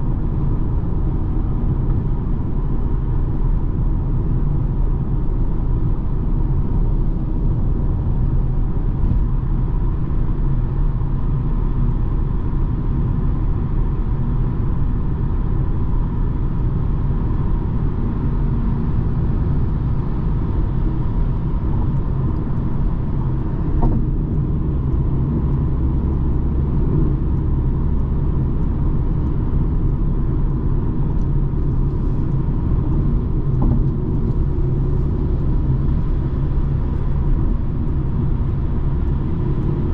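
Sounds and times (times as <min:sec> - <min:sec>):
diesel car engine rumble: 0:00.0 - 0:39.9
tyre road noise: 0:00.0 - 0:39.9.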